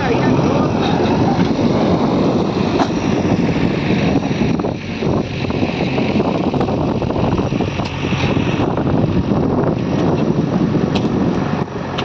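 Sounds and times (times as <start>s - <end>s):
diesel backhoe loader running: 0.0s - 12.0s
wind noise on microphone: 0.0s - 12.0s.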